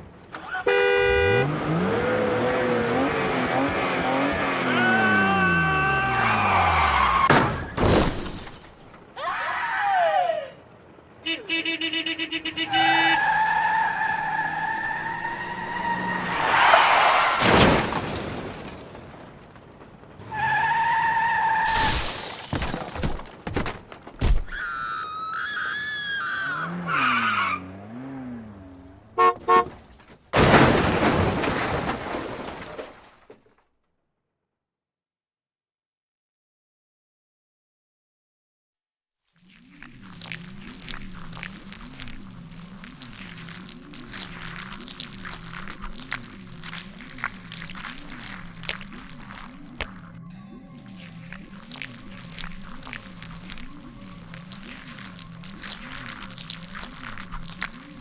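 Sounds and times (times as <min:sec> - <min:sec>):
car horn blasts: 0:00.6 - 0:01.6, 0:11.2 - 0:13.3, 0:29.1 - 0:29.8
glass breaking: 0:07.4 - 0:09.0, 0:17.4 - 0:19.7, 0:21.7 - 0:23.6
crash impacts: 0:17.2 - 0:20.2, 0:30.3 - 0:33.4
tyre screech: 0:24.5 - 0:27.7.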